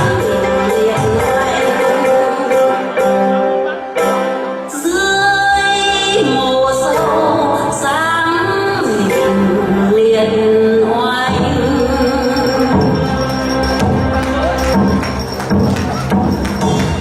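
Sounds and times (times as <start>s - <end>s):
woman singing slow song: 0.0s - 3.4s, 4.7s - 15.0s
instrumental backing track: 0.0s - 17.0s.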